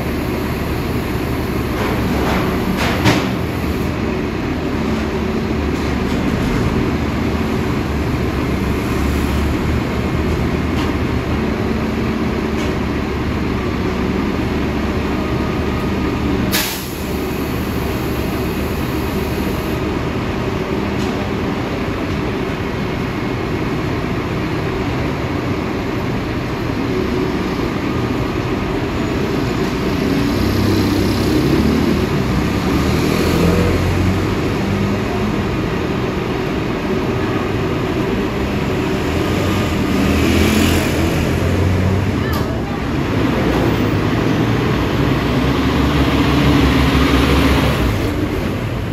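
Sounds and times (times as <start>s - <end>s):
garbage truck idling: 0.0s - 8.8s
street traffic engine noise: 0.0s - 48.9s.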